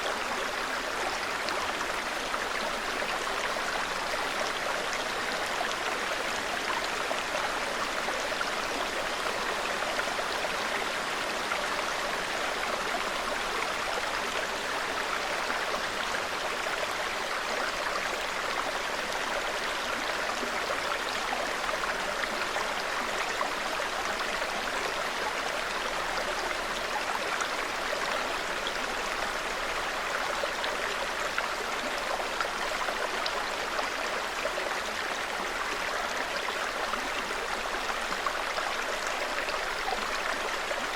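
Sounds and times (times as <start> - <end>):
stream babbling: 0.0 - 40.9.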